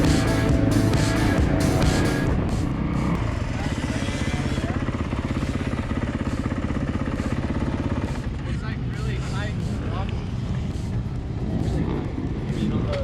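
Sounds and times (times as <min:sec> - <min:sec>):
background music: 0:00.0 - 0:03.4
dirt bike engine running: 0:00.0 - 0:13.0.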